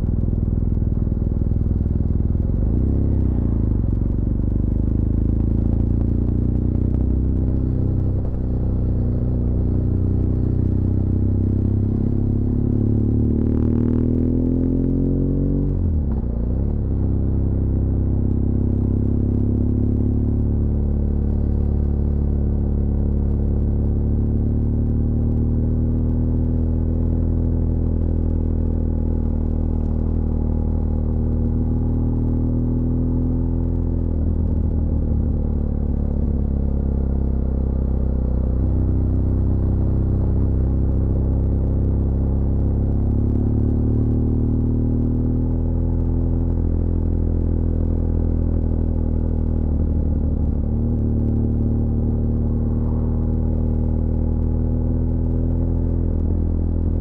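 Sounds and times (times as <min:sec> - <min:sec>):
motorcycle engine rumbling: 0:26.0 - 0:57.0.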